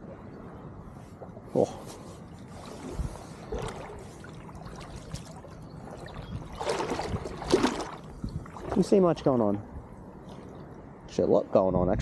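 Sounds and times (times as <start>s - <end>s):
water lapping and sloshing: 0.0s - 10.9s
water splash: 2.5s - 9.1s.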